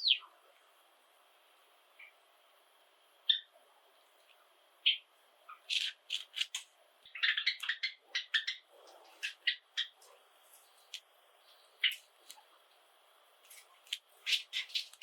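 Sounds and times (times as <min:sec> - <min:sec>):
sparrows chirping: 0:00.0 - 0:00.2, 0:04.8 - 0:12.5, 0:13.5 - 0:15.0.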